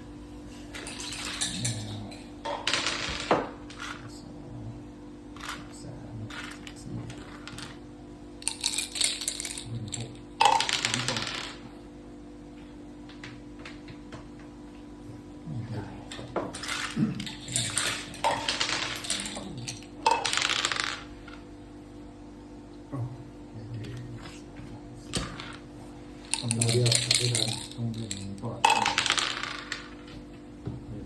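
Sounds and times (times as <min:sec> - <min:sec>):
steady low hum: 0:00.0 - 0:31.0
dice and pieces clattering on board: 0:00.7 - 0:04.1, 0:05.4 - 0:07.8, 0:08.4 - 0:11.7, 0:16.1 - 0:21.4, 0:25.1 - 0:25.6, 0:26.2 - 0:30.2.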